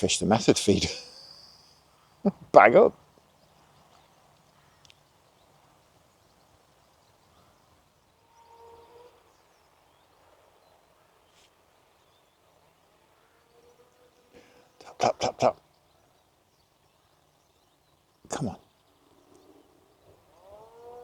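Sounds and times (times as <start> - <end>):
faint ticks: 3.2 - 5.1.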